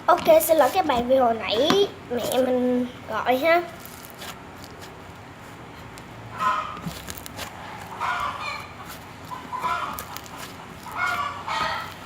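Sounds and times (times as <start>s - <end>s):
chicken clucking: 7.6s - 10.0s, 10.9s - 11.9s.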